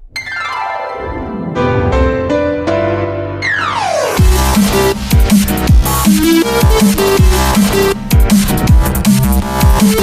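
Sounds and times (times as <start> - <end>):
drum and bass music: 0.8 - 2.9, 4.2 - 10.0.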